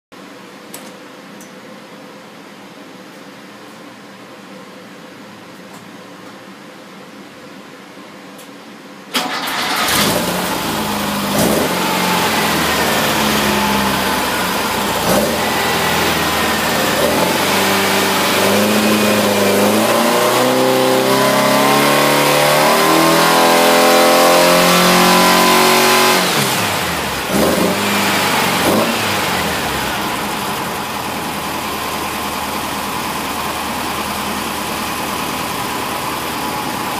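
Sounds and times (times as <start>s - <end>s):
engine revving and idling: 9.4s - 36.9s.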